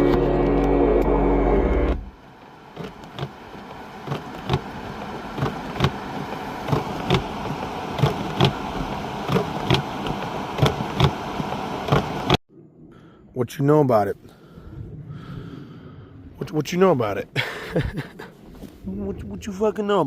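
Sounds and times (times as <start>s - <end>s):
music: 0.0s - 2.1s.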